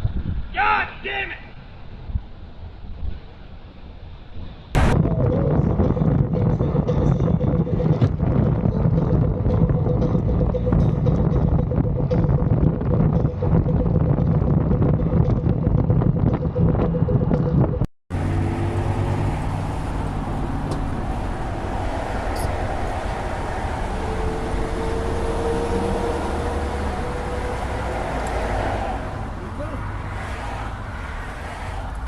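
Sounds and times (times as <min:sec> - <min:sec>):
car engine and road noise: 0:01.6 - 0:32.0.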